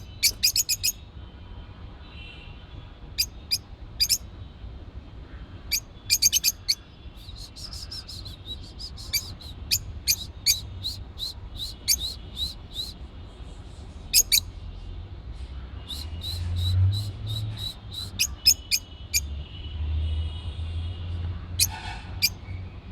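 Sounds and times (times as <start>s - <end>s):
pet birds chirping: 0.0s - 1.0s, 3.1s - 4.3s, 5.7s - 13.1s, 14.1s - 14.5s, 15.8s - 19.3s, 21.5s - 22.6s.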